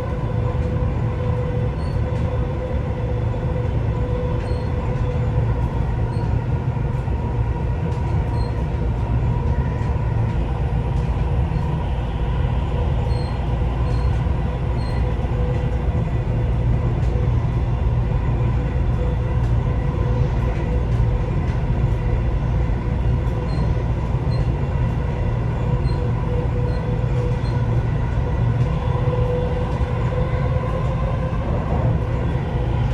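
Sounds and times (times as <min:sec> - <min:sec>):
train drive whine: 0:00.0 - 0:32.9
train wheels rumbling on track: 0:00.0 - 0:32.9.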